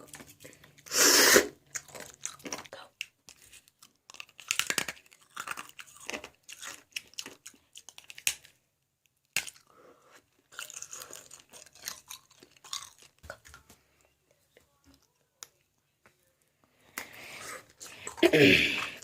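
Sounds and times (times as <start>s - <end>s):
teeth crunching ice: 1.6s - 8.6s, 9.2s - 9.7s, 10.4s - 13.7s.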